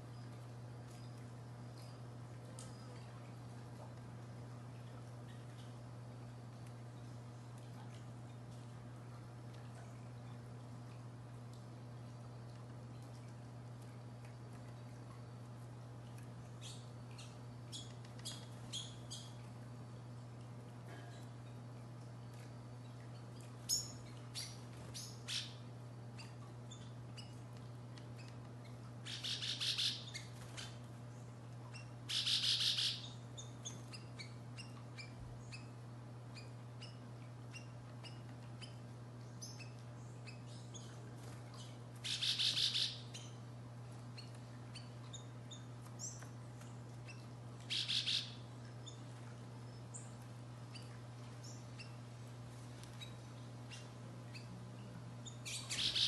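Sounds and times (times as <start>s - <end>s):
steady low hum: 0.0s - 56.0s
songbird trills: 16.6s - 19.6s, 22.8s - 27.4s, 28.1s - 43.5s, 44.1s - 46.4s, 47.0s - 52.0s, 52.9s - 56.0s.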